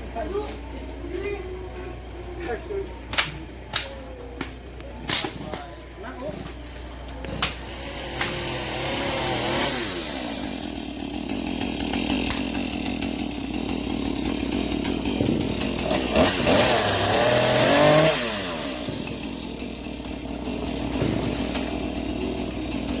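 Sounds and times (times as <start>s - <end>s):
chainsaw revving: 7.2s - 23.0s.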